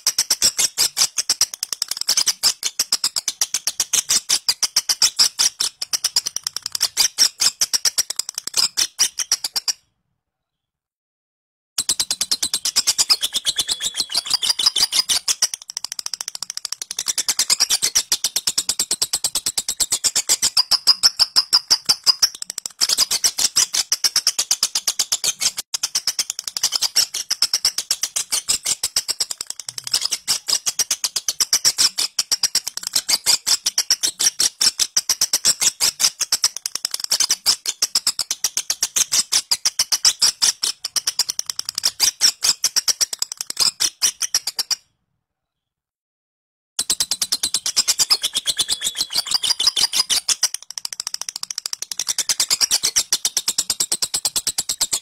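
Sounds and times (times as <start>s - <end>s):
lovebird rapid high chirps: 0.0s - 9.8s, 11.8s - 44.8s, 46.8s - 55.0s.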